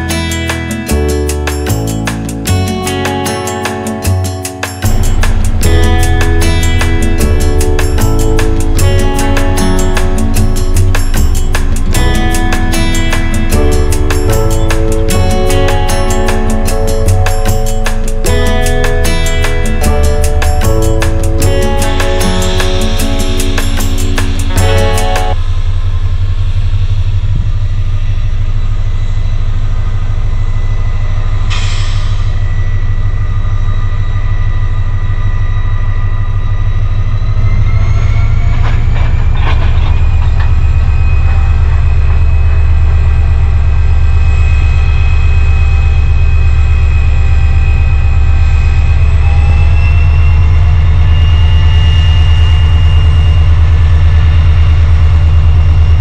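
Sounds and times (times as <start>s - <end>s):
freight train rumbling past: 0.0s - 28.7s
rising whine: 0.0s - 56.0s
short sharp sound: 31.4s - 33.8s.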